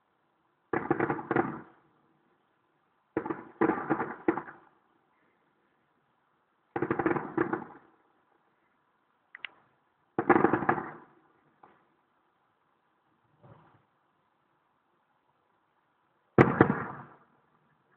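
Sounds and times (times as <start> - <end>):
distant fireworks bangs: 0.7 - 1.8, 3.1 - 4.7, 6.7 - 7.9, 10.2 - 11.8, 16.4 - 17.3.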